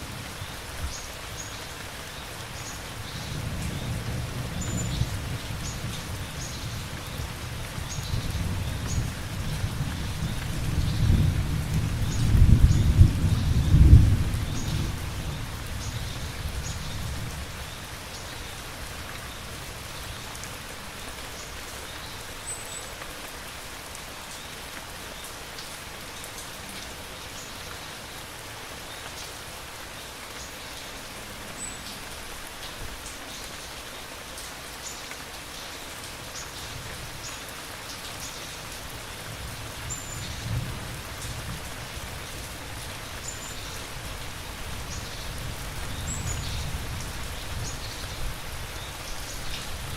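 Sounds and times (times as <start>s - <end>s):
steady rain falling: 0.0s - 49.9s
low thunder rumbling: 8.1s - 16.0s.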